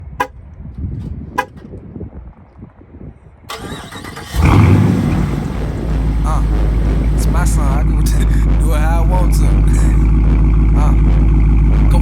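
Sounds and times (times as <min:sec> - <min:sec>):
car horn chirp: 0:00.0 - 0:00.4, 0:01.4 - 0:01.6, 0:05.3 - 0:12.0
car engine starting: 0:03.5 - 0:12.0.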